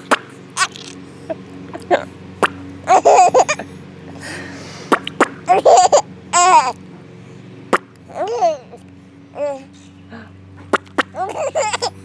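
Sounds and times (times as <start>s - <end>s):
baby laughing: 0.6s - 1.0s, 2.9s - 4.3s, 5.5s - 6.8s, 8.1s - 8.8s, 9.4s - 9.7s, 11.1s - 12.0s.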